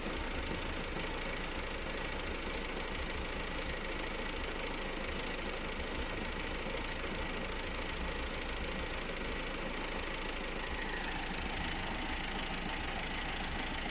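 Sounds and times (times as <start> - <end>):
diesel engine idling: 0.0 - 13.9.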